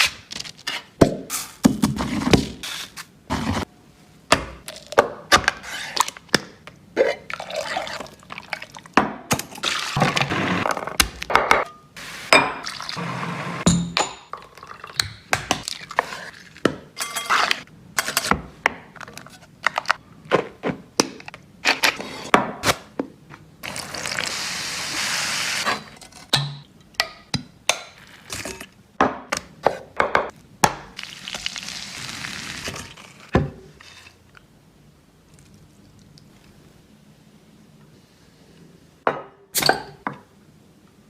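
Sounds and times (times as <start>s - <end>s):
utensils and dishes clinking: 17.0s - 18.3s.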